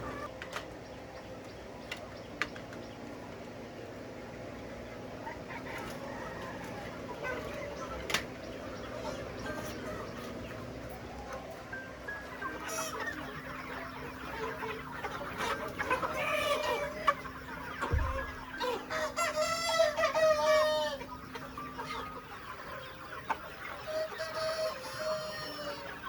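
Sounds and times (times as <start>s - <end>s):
chickens clucking: 0.0s - 26.0s
low thump: 17.9s - 18.2s.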